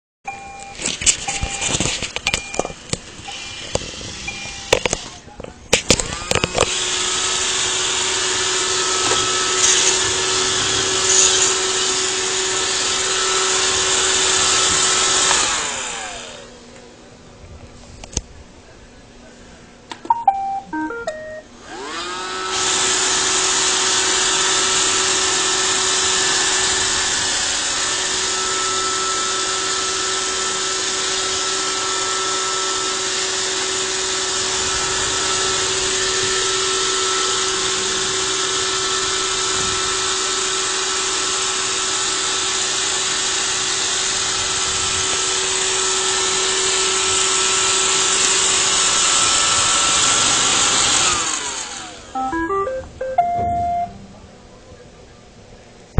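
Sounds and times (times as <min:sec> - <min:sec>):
robot vacuum motors whirring: 0:01.2 - 0:05.2, 0:05.8 - 0:16.4, 0:21.7 - 0:52.1
robot vacuum beeping notes: 0:02.3 - 0:04.9, 0:20.1 - 0:21.6, 0:52.2 - 0:54.3.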